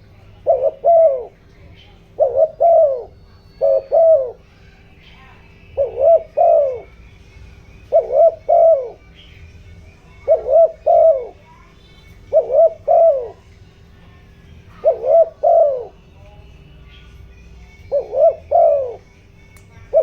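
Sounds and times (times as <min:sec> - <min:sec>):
dove cooing: 0:00.0 - 0:20.0.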